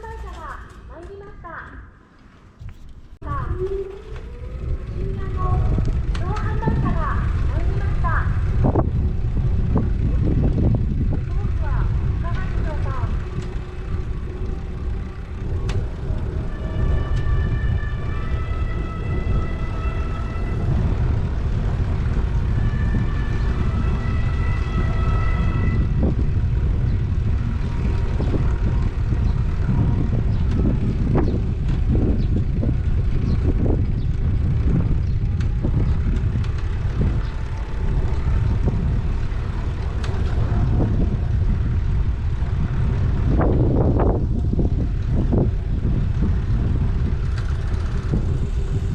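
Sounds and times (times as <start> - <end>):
street traffic: 0.0 - 48.9
vehicle passing: 2.2 - 48.9
wind noise on microphone: 2.4 - 48.9.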